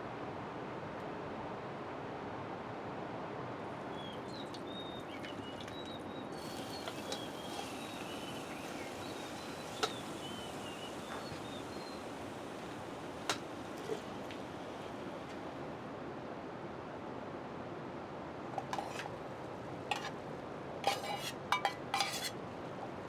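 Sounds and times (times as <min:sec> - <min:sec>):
bird chirping: 0:03.9 - 0:12.1
steady rain: 0:05.4 - 0:15.9.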